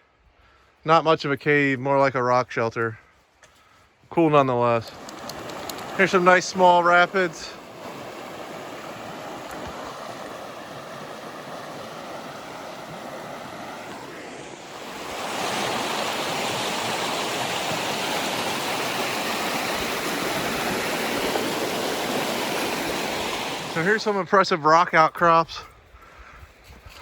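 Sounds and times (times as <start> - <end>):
river rapids rushing: 4.9 - 24.3.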